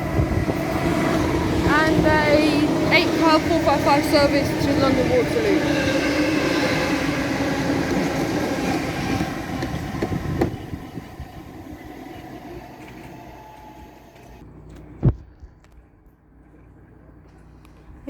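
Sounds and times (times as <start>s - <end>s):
electric train passing: 0.0s - 14.4s.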